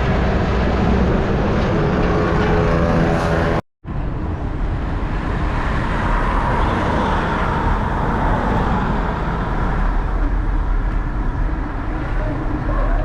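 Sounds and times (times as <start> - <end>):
road traffic low rumble: 0.0 - 13.0.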